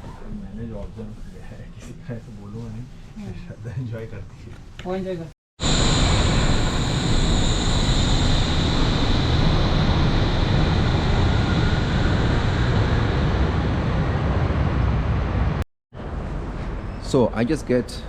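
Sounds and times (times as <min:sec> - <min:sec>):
high whine: 0:05.6 - 0:15.6
railway car rumbling: 0:05.6 - 0:17.0.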